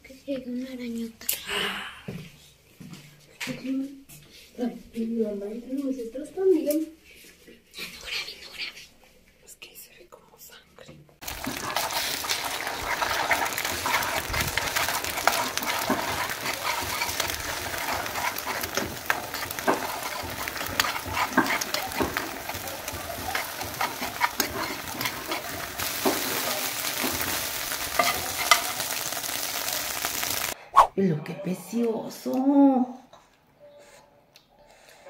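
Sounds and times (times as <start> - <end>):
metal spoon scraping a pan: 11.2 - 30.5
eggs sizzling in a skillet: 11.2 - 30.6.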